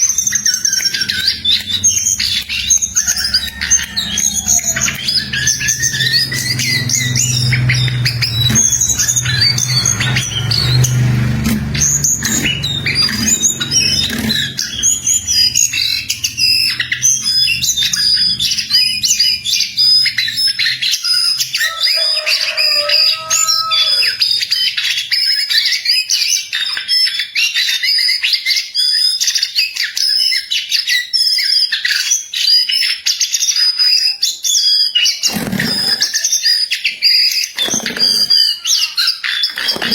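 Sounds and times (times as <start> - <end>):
bird singing rapid chirps: 0.0 - 39.9
low rumble: 1.2 - 20.5.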